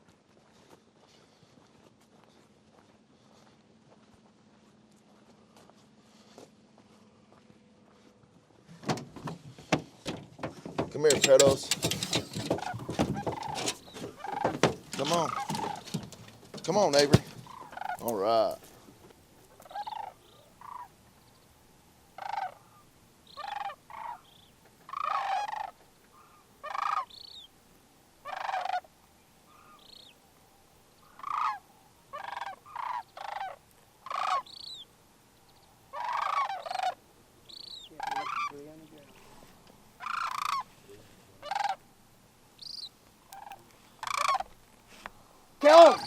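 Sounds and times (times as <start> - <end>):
cranes rattling calls: 9.7 - 18.7, 19.6 - 20.9, 22.2 - 27.4, 28.2 - 28.9, 31.0 - 34.8, 35.9 - 39.2, 40.0 - 40.8, 41.4 - 41.9, 42.6 - 45.0, 45.6 - 46.0.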